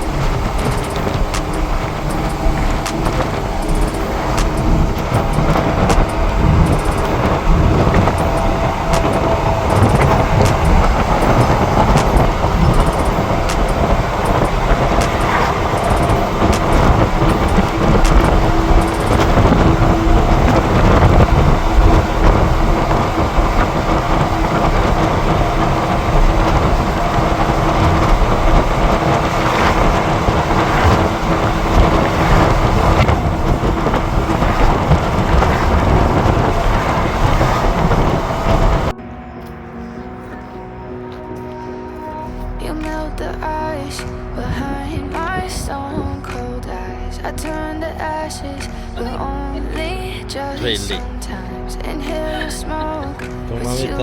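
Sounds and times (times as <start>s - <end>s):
sharp clicks: 0.0s - 19.6s
engine hum: 0.0s - 54.0s
rushing wind and road noise: 0.0s - 54.0s.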